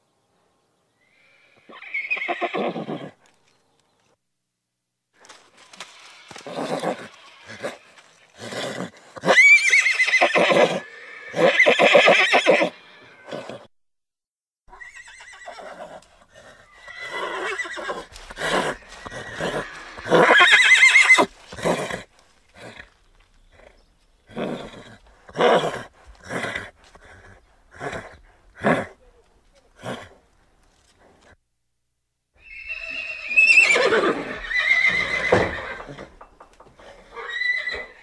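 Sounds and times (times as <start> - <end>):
horse neighing: 1.1 - 3.2, 6.3 - 13.7, 14.7 - 29.0, 32.4 - 38.0.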